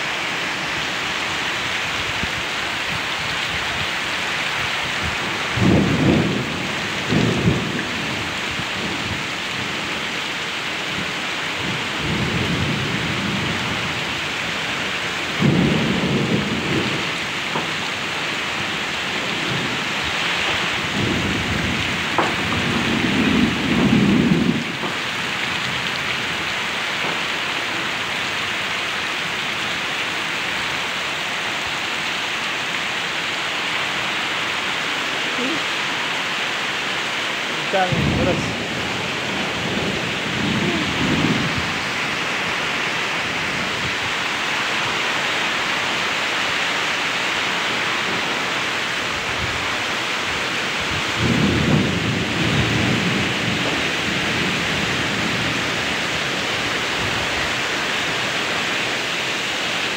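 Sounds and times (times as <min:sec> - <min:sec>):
heavy rain on road: 0:00.0 - 0:59.9
low rumbles: 0:37.5 - 0:44.1.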